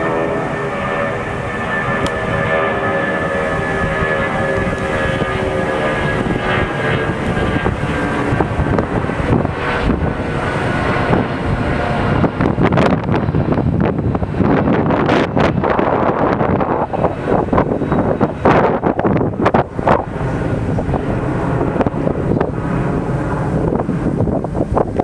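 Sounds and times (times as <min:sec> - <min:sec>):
jet engines whining: 0:00.0 - 0:25.0
wind buffeting microphone: 0:00.0 - 0:25.0.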